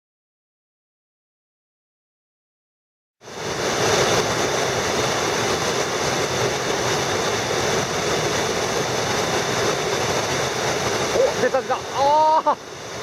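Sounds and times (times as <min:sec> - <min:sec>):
mountain stream rushing: 0:03.2 - 0:13.0.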